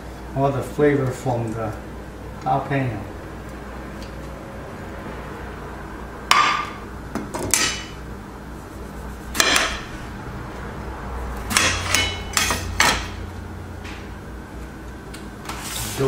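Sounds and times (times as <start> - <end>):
steady low hum: 0.0 - 16.0
utensils and dishes clinking: 11.5 - 13.2.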